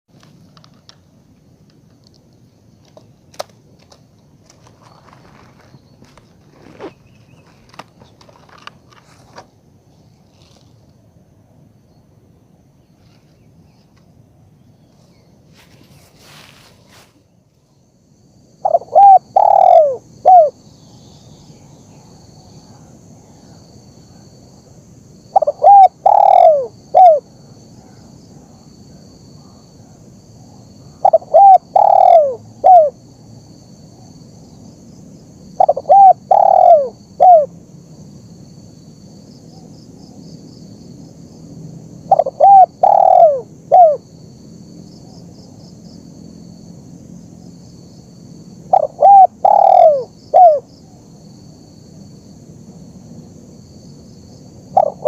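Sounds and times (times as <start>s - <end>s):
dove cooing: 18.6s - 20.6s, 25.3s - 28.6s, 29.4s - 33.0s, 35.6s - 37.5s, 42.1s - 44.1s, 48.7s - 50.7s, 54.7s - 55.0s.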